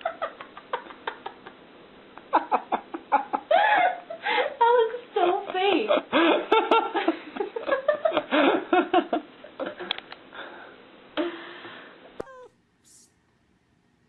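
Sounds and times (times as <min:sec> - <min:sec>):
person's voice: 0:12.2 - 0:13.1.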